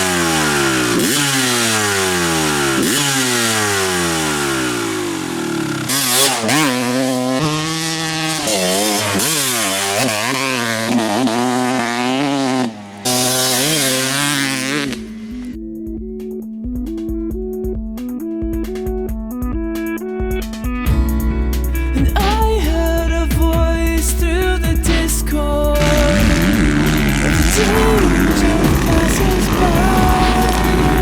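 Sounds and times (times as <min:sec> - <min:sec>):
dirt bike engine revving: 0:00.0 - 0:15.6, 0:21.7 - 0:31.0
music with steady tones: 0:15.0 - 0:31.0.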